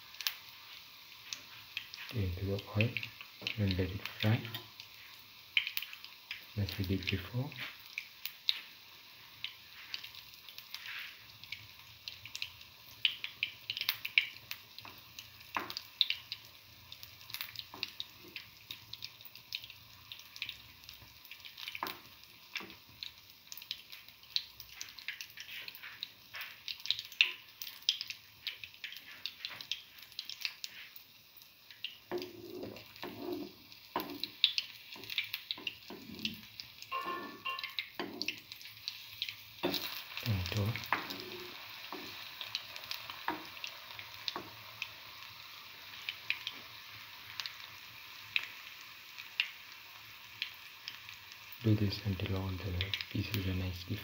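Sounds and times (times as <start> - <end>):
fritter frying in hot oil: 0.0 - 54.0
spatula scraping in pan: 10.7 - 11.3, 24.7 - 26.6, 28.8 - 31.0, 32.1 - 39.0, 39.6 - 43.6.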